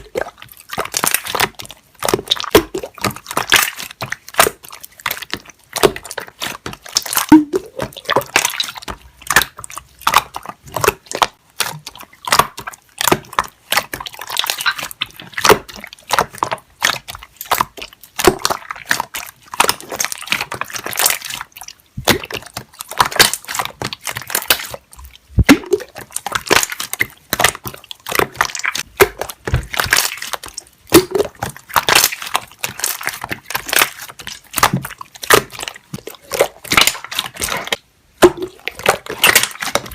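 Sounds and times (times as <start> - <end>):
slime squelching and popping: 0.0 - 39.9.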